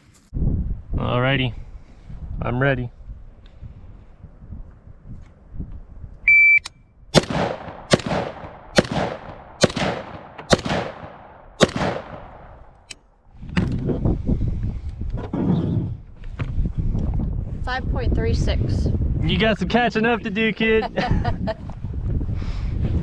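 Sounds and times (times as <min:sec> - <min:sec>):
gunshots: 0:07.2 - 0:12.7.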